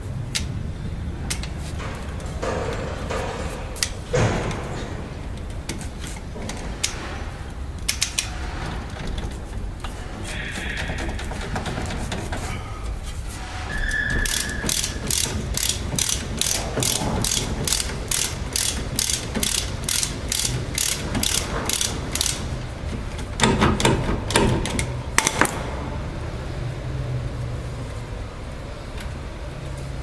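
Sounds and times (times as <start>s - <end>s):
ratchet wrench clicking: 7.8s - 8.3s, 13.9s - 25.6s.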